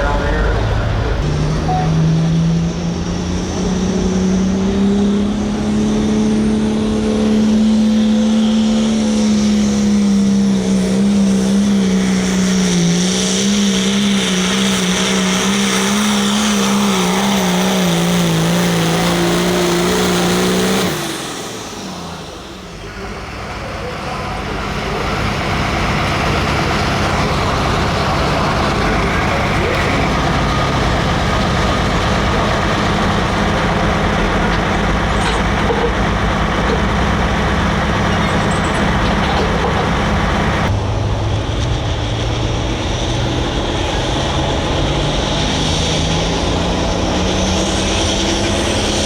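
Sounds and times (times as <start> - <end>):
broad noise: 0.0 - 4.6, 21.9 - 49.0
diesel tractor engine at full throttle: 0.0 - 49.0.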